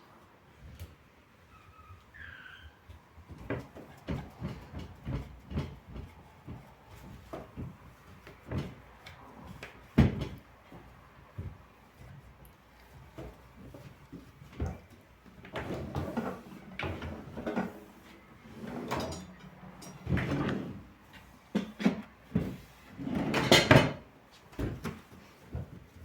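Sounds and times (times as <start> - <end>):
kitchen items knocking and clattering: 21.6 - 25.6
cupboard doors and drawers shutting: 21.8 - 24.0.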